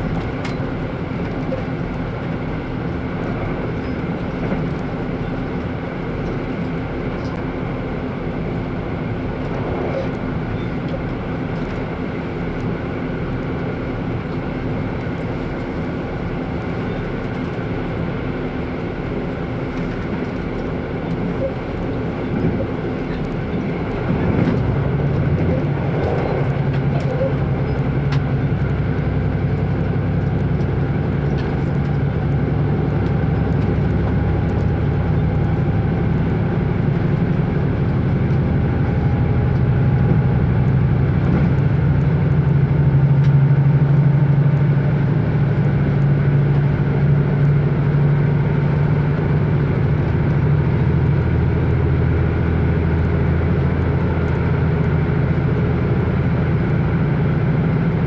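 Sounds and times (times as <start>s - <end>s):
diesel engine: 0.0s - 58.0s
train wheels on rails: 19.7s - 47.4s.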